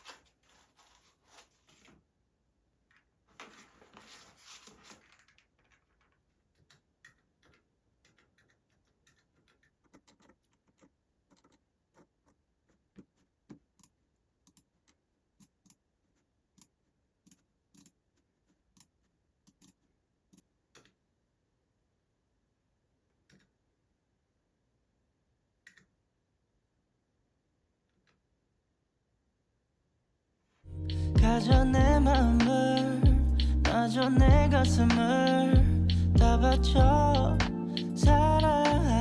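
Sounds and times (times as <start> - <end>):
faint rustling: 0.0 - 2.1, 3.3 - 6.3.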